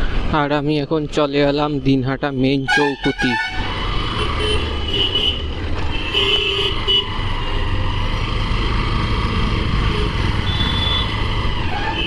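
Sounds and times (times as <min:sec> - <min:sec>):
engine and road noise rumble: 0:00.0 - 0:12.0
vehicle horn honking: 0:02.7 - 0:03.6, 0:04.2 - 0:07.1, 0:09.8 - 0:11.1.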